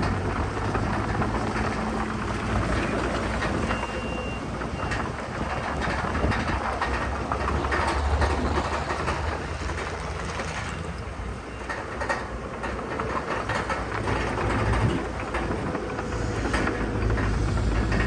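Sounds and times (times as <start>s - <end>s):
heavy diesel machinery working: 0.0s - 18.0s
rattling clanking clatter: 0.0s - 18.0s.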